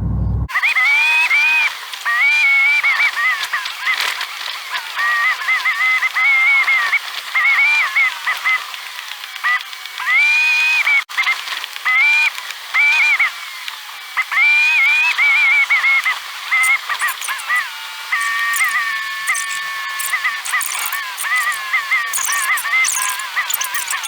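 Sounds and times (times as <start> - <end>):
tires squealing on snow: 16.6 - 24.0.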